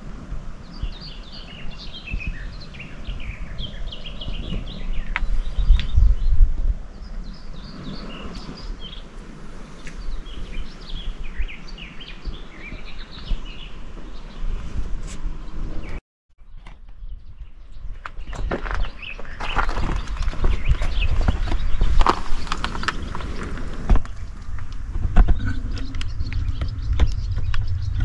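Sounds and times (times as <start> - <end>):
small birds chirping: 0.6 - 16.0, 16.8 - 28.0
low rumble: 20.0 - 28.0.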